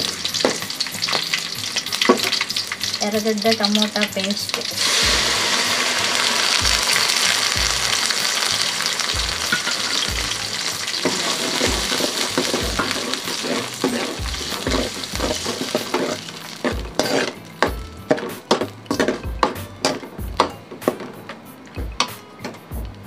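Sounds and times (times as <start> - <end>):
paste sizzling in hot oil: 0.0 - 20.3
steel ladle scraping pan: 4.8 - 20.0.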